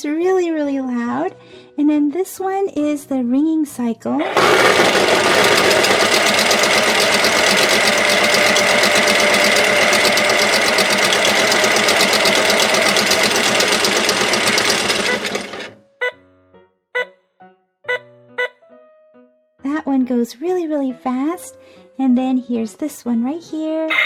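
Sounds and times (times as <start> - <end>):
toy washing machine spinning: 4.2 - 15.8.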